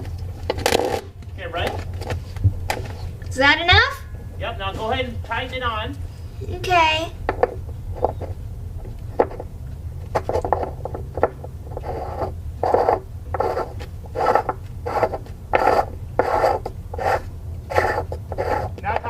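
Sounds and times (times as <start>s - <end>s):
steady low hum: 0.0s - 19.0s
threads rubbing and scraping: 0.0s - 19.0s.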